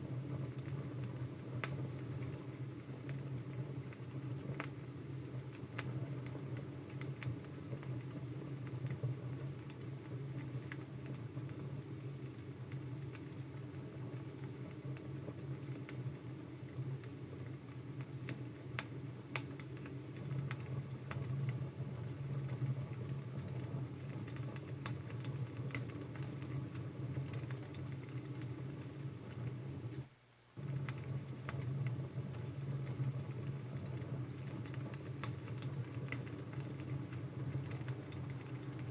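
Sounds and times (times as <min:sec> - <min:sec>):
fire crackles and pops: 0:00.0 - 0:38.9
fire low rumble: 0:17.0 - 0:38.9.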